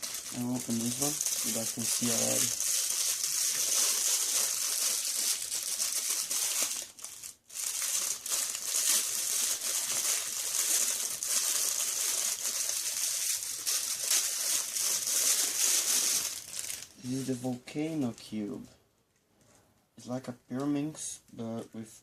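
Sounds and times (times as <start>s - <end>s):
packaging crinkling and rustling: 0.0s - 17.4s.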